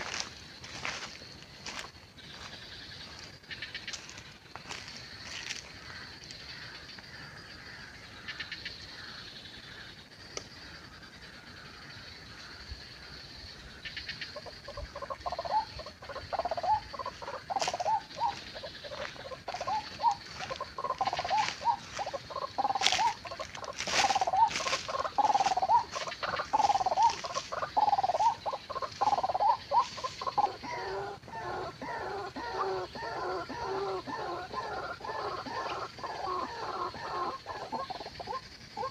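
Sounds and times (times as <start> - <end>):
bird croaking call notes: 13.8 - 38.9.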